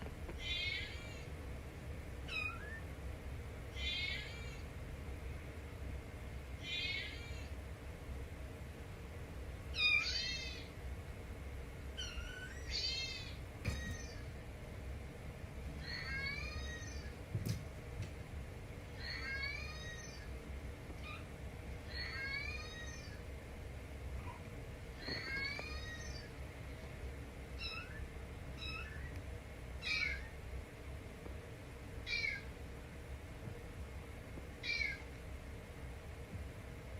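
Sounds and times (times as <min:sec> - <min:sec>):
kitten meowing: 0:00.4 - 0:01.2, 0:02.3 - 0:02.8, 0:03.8 - 0:04.6, 0:06.6 - 0:07.5, 0:09.8 - 0:10.7, 0:12.0 - 0:14.2, 0:15.8 - 0:17.1, 0:19.0 - 0:20.3, 0:21.9 - 0:23.2, 0:25.0 - 0:26.3, 0:27.6 - 0:28.0, 0:28.6 - 0:29.1, 0:29.8 - 0:30.3, 0:32.1 - 0:32.5, 0:34.6 - 0:35.0.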